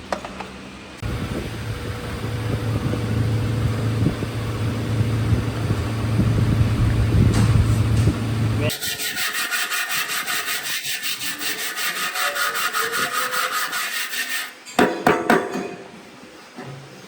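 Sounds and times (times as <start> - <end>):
hand scraping back and forth: 8.6 - 14.6.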